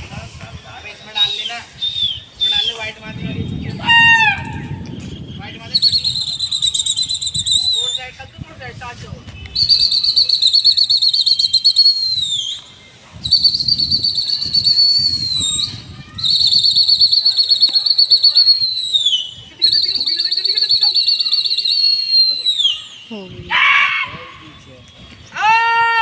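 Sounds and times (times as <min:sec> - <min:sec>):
low wind rumble: 0:00.0 - 0:10.8, 0:13.0 - 0:17.3
shrill warbling whistle blasts: 0:03.7 - 0:08.2, 0:09.6 - 0:23.2.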